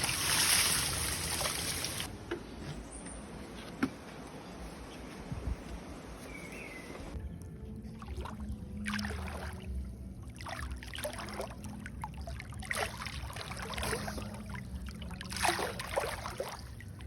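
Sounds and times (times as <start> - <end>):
water splashing and sloshing: 0.0 - 2.1, 7.3 - 17.0
low steady hum: 4.1 - 17.0.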